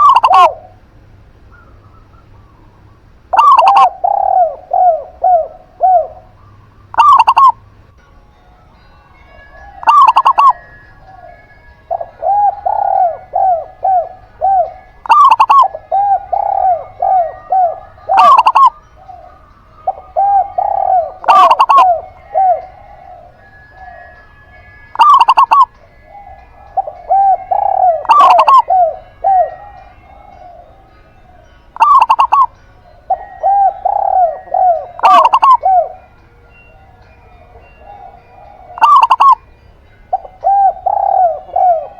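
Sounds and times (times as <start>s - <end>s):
soft rounded dove coos: 0.0s - 0.8s, 1.4s - 7.7s, 9.5s - 39.5s, 40.1s - 41.9s
loud clipped dove notes: 9.6s - 41.9s.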